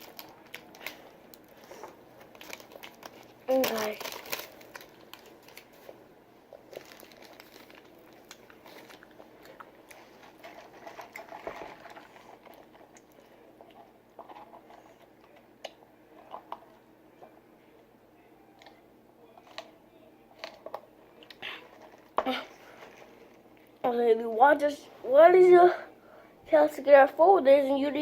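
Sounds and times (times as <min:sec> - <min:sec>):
paper packaging crinkling: 0:00.0 - 0:13.2.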